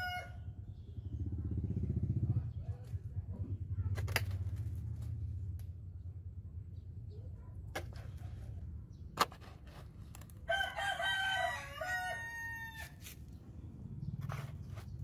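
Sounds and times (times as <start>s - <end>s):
rooster crowing: 0.0s - 0.4s, 10.5s - 13.0s.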